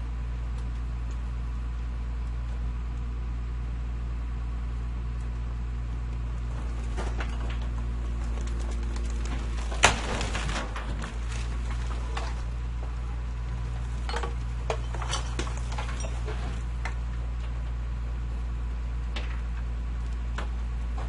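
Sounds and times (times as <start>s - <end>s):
light clanks and knocks: 6.5s - 17.8s.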